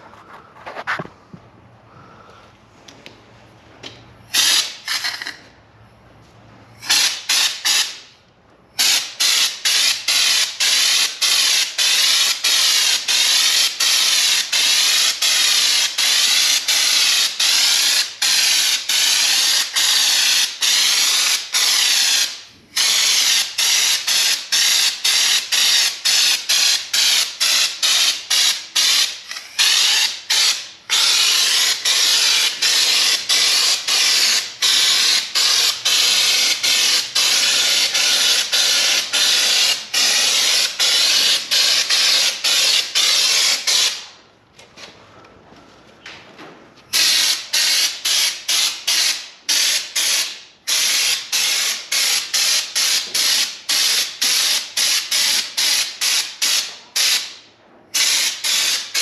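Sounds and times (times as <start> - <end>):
spray gun hissing: 8.8 - 44.0.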